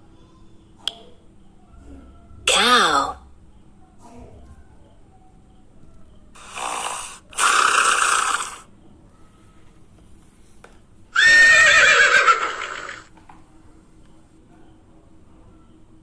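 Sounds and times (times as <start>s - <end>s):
horse neighing: 11.2s - 13.1s.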